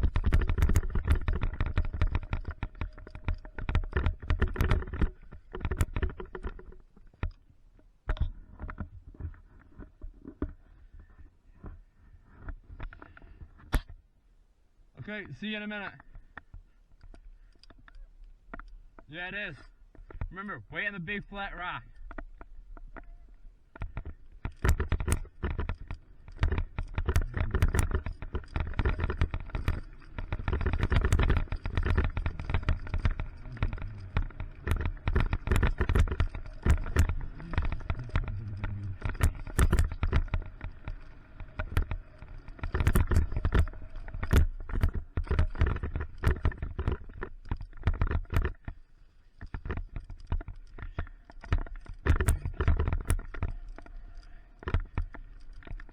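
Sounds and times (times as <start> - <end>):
knocks over rocks and roots: 0.0 - 7.3, 23.7 - 48.7, 49.4 - 55.9
bike rattling and clattering: 0.0 - 11.2, 21.8 - 55.9
continuous low rumble: 0.0 - 55.9.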